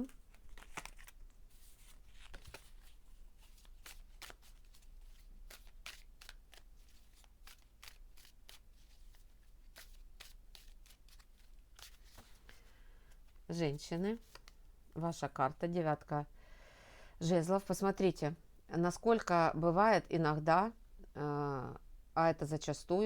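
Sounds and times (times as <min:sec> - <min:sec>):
cards being shuffled: 0:00.0 - 0:13.5, 0:14.2 - 0:14.6.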